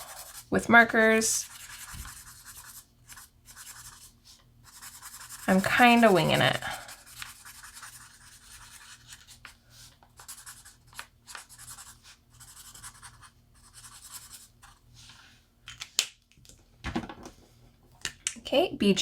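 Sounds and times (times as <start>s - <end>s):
marker scratching on paper: 0.0s - 9.6s, 10.2s - 14.8s.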